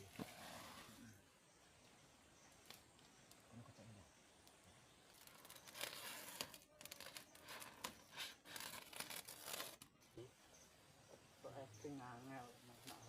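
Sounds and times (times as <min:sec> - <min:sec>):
rustling and crinkling: 0:05.0 - 0:10.0.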